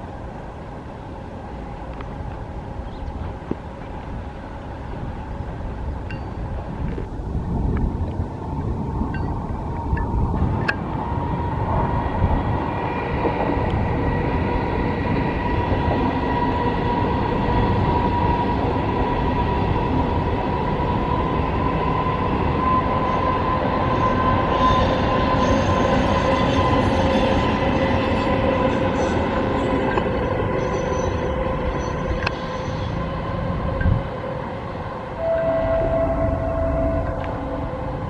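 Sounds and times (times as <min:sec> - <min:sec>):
train wheels rumbling on track: 0:00.0 - 0:38.0
steady ringing tone: 0:06.0 - 0:06.6, 0:35.2 - 0:38.0
wheel squeals: 0:28.8 - 0:33.1.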